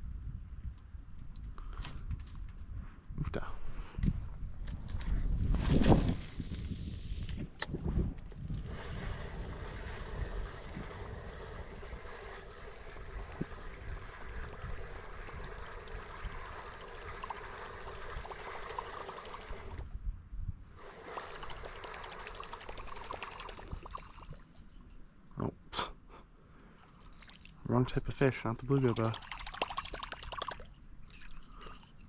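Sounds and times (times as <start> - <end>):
water trickling and splashing: 8.7 - 19.9, 20.8 - 24.7, 26.7 - 32.0.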